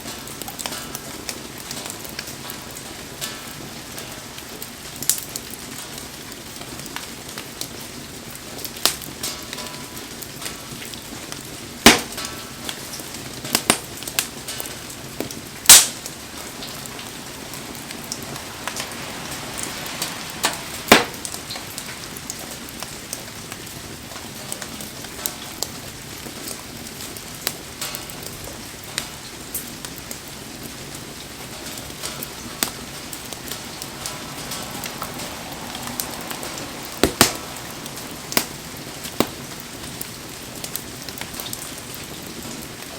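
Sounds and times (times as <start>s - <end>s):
campfire crackling and popping: 0.0s - 42.9s
steady rain hiss: 0.0s - 42.9s.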